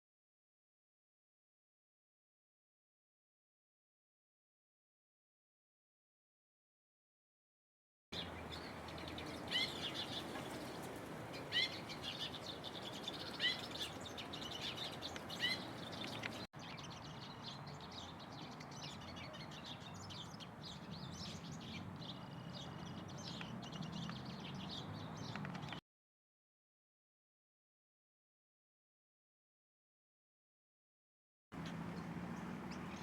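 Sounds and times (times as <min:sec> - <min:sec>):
many small birds chirping: 0:08.2 - 0:25.8, 0:31.6 - 0:33.0.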